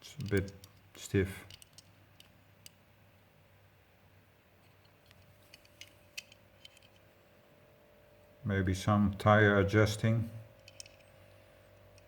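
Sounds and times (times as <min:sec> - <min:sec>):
faint clicks of toy handled: 0:00.0 - 0:02.8, 0:04.6 - 0:07.1, 0:10.5 - 0:12.0.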